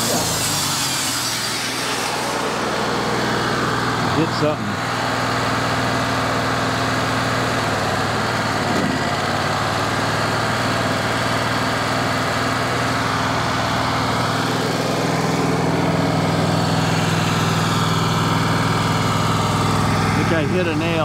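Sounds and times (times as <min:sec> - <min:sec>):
band blade cutting log: 0:00.0 - 0:05.2, 0:08.5 - 0:09.4, 0:10.8 - 0:21.0
band sawmill engine under load: 0:00.0 - 0:21.0.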